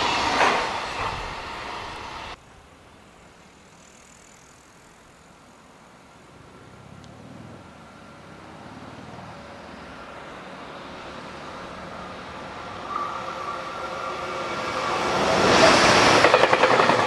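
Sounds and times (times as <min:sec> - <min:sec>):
freight train rumble and rail noise: 0:00.0 - 0:02.4, 0:06.0 - 0:17.0.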